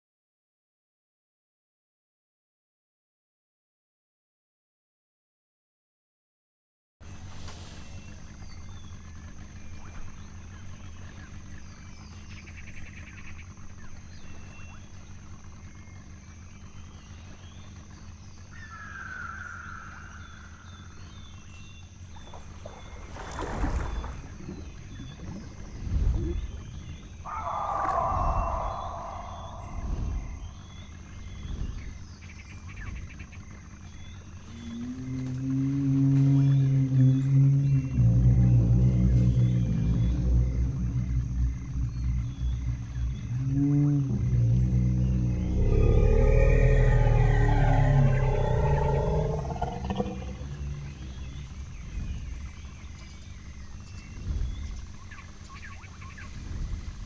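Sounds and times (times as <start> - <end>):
low rumbling background: 7.0 - 57.0
faint bird chirps: 7.6 - 35.4, 36.4 - 56.2
dinosaur roar: 22.6 - 31.4, 34.5 - 51.8
faint short high calls: 27.2 - 30.7.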